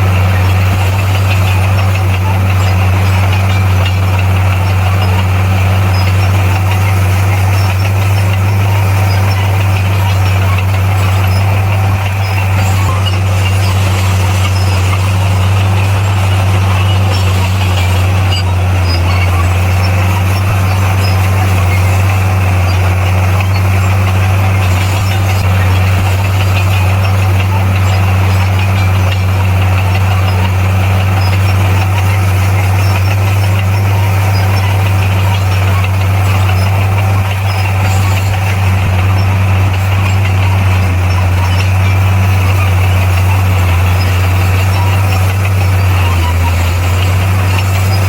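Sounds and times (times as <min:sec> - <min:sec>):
bulldozer diesel engine droning: 0:00.0 - 0:48.0.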